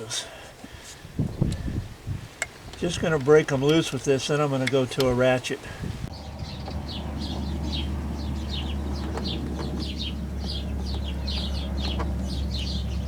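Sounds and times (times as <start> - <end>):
birds chirping: 1.2 - 13.0
steady low hum: 5.7 - 13.0.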